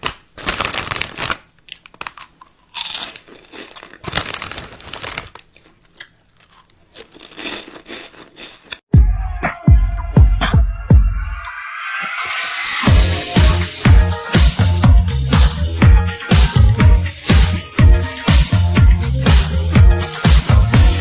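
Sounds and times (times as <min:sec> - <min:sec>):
crunching and crinkling: 0:00.0 - 0:08.8
electronic music with heavy bass: 0:09.0 - 0:21.0.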